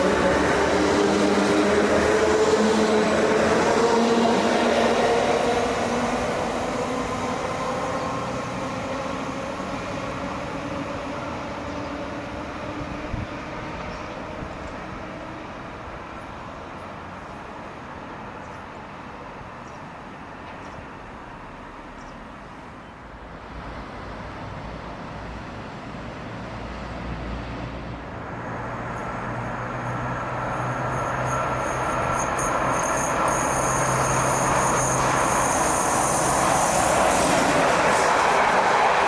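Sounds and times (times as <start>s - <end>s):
freight train approaching: 0.0s - 39.0s
thin high whine: 30.4s - 39.0s.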